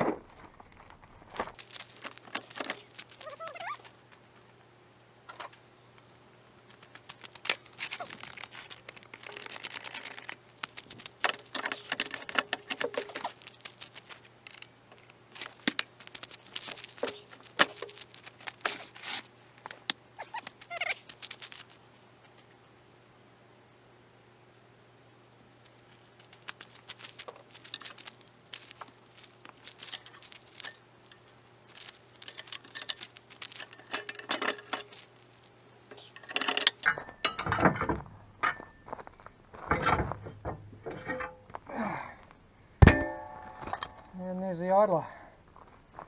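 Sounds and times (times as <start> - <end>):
tools knocking and scraping metal: 11.2 - 13.4, 33.6 - 35.0, 35.9 - 38.9, 39.6 - 41.6, 42.8 - 44.2.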